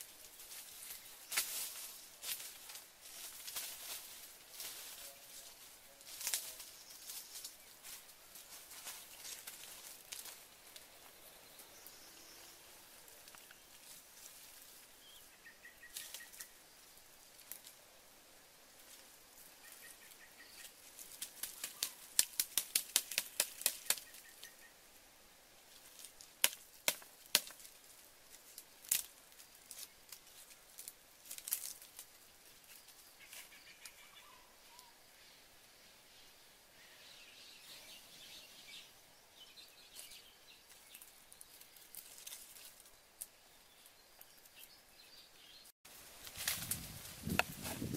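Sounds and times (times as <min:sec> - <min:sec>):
sticks snapping in wood fire: 0:21.2 - 0:24.2, 0:26.0 - 0:27.7, 0:28.8 - 0:29.1.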